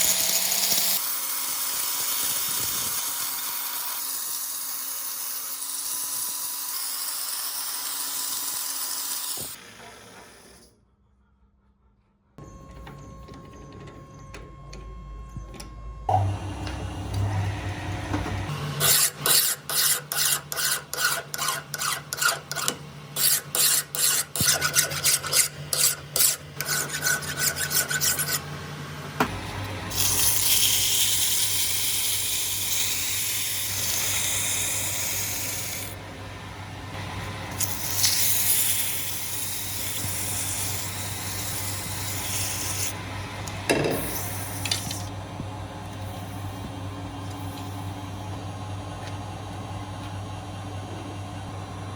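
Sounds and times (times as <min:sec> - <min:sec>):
file rasping on metal: 0:18.8 - 0:28.5.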